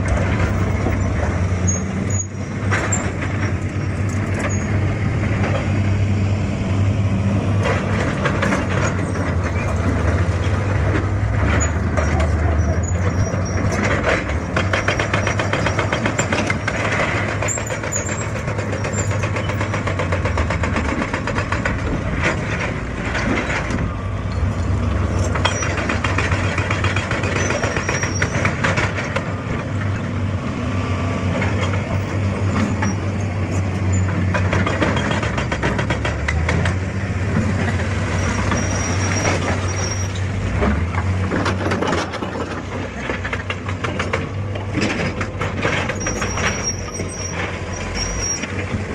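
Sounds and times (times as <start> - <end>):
excavator diesel engine: 0.0 - 48.9
clattering and knocking: 7.6 - 29.9, 33.8 - 48.9.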